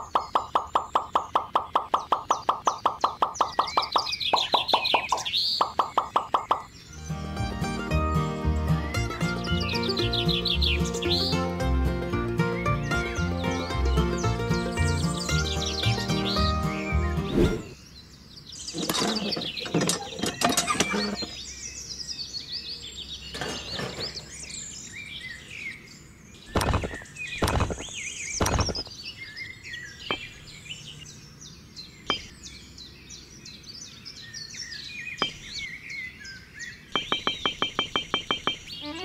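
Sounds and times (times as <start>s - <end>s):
birds chirping and twittering: 0.0s - 39.0s
sharp knocks: 37.0s - 38.7s.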